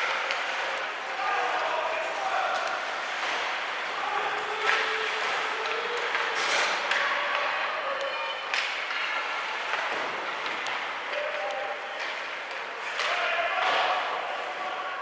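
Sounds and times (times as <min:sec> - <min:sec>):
spectators' voices: 0:00.0 - 0:15.0
hockey sticks and puck clacking: 0:04.6 - 0:04.9, 0:05.6 - 0:14.2.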